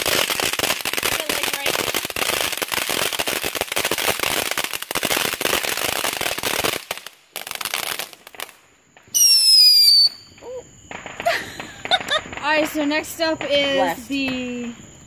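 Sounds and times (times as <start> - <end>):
firework crackling pops: 0.0 - 15.0
high firework whistle: 9.1 - 12.3.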